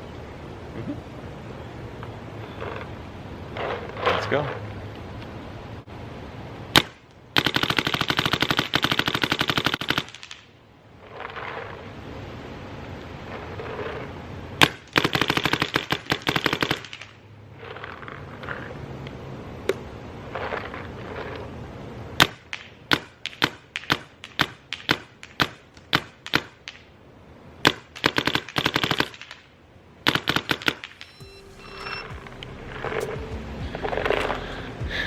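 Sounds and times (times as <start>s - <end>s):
paintball marker firing: 22.2s - 26.9s.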